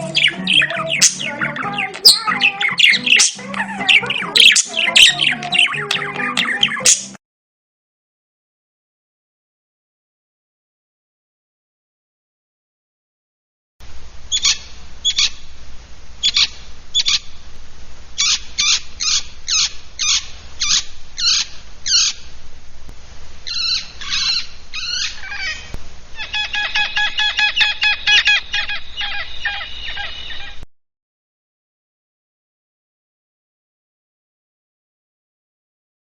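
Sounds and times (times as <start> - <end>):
bird singing: 0.0 - 7.2, 14.3 - 15.4, 16.2 - 17.3, 18.2 - 22.2, 23.4 - 30.6.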